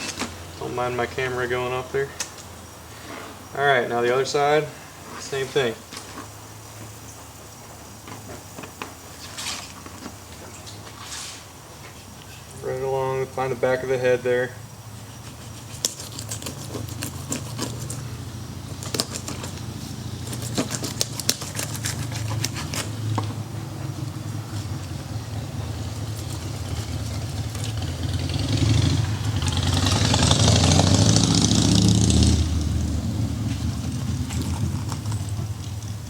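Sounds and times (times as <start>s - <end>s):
low motor hum: 14.6s - 36.0s
knife cutting fish backbone: 15.0s - 23.1s
sharp crackling clicks: 18.7s - 23.0s.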